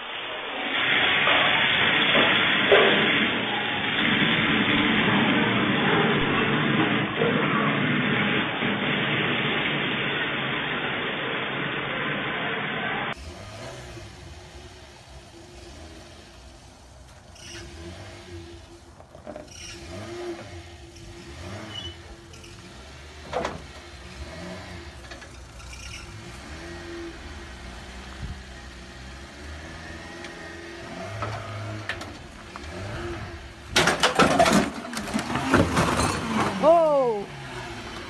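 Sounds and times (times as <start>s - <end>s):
loud crunching and clattering: 0.8s - 10.8s, 16.4s - 38.0s
car engine running: 12.9s - 38.0s.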